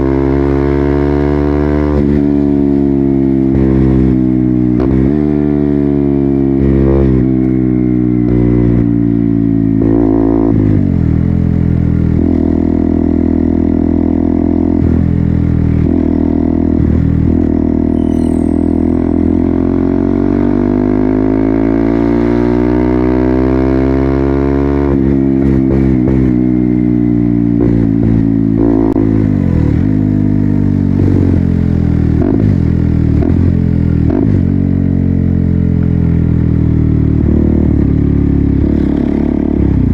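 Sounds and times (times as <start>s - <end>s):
motorcycle engine revving: 9.7s - 39.9s.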